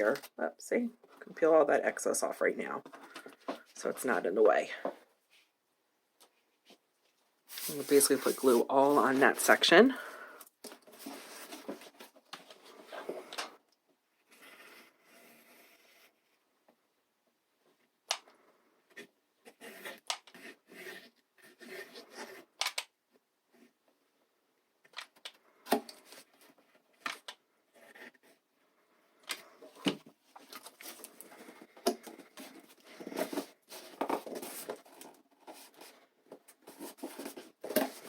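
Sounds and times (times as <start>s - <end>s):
scraping and rustling: 7.5s - 9.6s.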